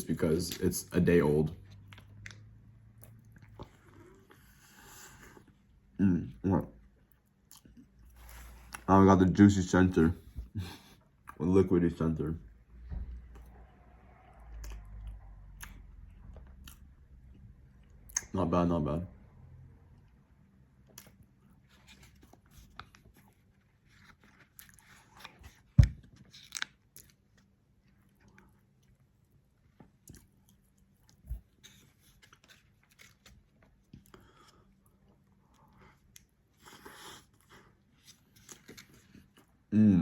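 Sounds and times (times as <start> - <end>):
person chewing: 1.6 - 5.8, 7.0 - 8.9, 14.5 - 18.3, 20.8 - 39.7.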